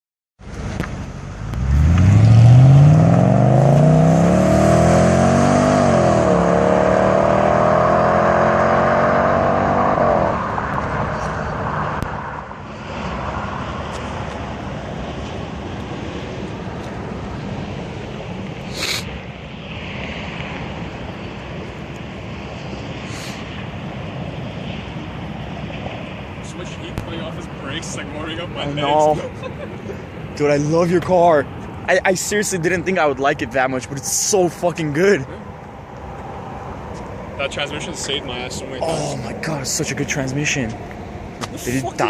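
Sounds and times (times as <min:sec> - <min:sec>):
car engine accelerating hard: 0:00.7 - 0:13.1.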